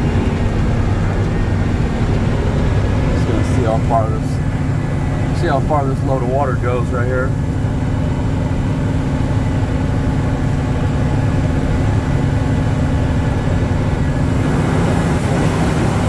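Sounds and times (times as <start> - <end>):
truck engine droning: 0.0 - 16.0.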